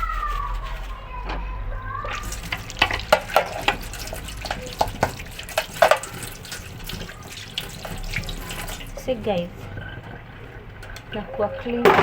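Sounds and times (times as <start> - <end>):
water splashing in a basin: 2.0 - 12.0
plastic parts knocking and clattering: 11.7 - 12.0.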